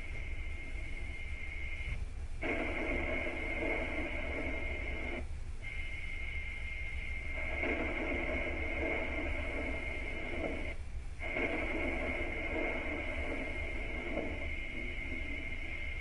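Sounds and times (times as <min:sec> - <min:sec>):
constant low hum: 0:00.0 - 0:16.0
low buzzing: 0:00.0 - 0:16.0.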